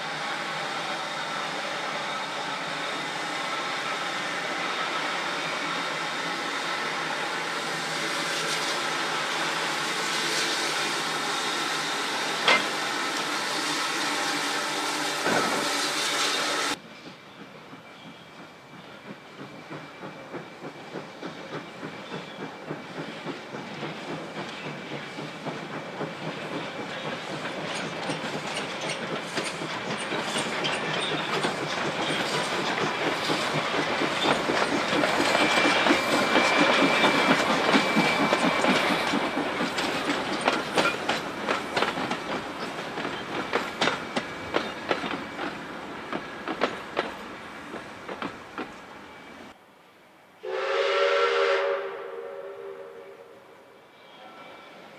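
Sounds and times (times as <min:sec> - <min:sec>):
steam train passing: 0:00.0 - 0:54.9
wheels clicking over rail joints: 0:19.0 - 0:48.9.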